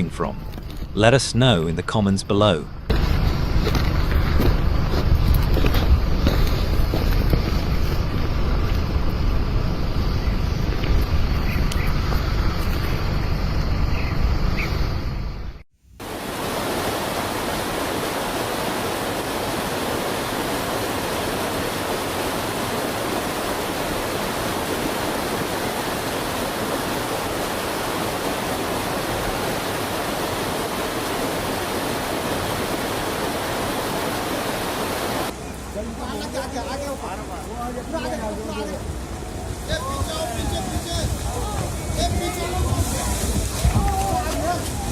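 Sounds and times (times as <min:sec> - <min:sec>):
steady rushing hiss: 0:02.5 - 0:44.9
low rumble: 0:02.6 - 0:15.6.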